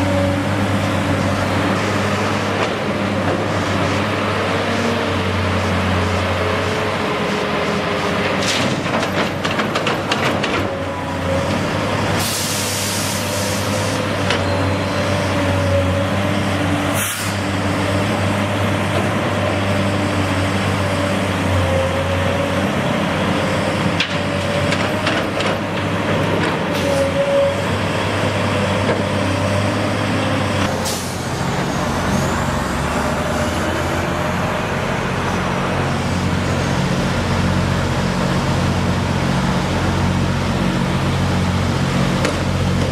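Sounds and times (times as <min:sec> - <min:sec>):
heavy diesel engine running: 0:00.0 - 0:42.9
air hiss: 0:12.2 - 0:13.9, 0:17.0 - 0:17.4.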